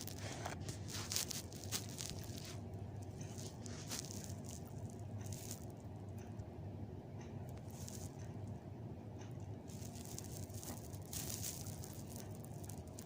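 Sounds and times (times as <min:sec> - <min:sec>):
cat rustling and scuffing cloth doll: 0:00.0 - 0:05.6, 0:09.7 - 0:13.0
steady low hum: 0:00.0 - 0:13.0.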